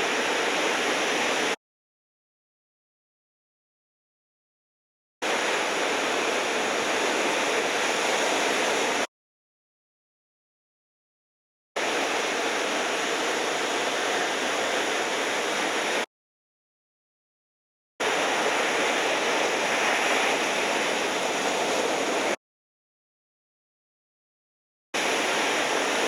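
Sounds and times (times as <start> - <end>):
ocean surf: 0.0 - 1.6, 5.2 - 9.1, 11.8 - 16.1, 18.0 - 22.4, 25.0 - 26.0.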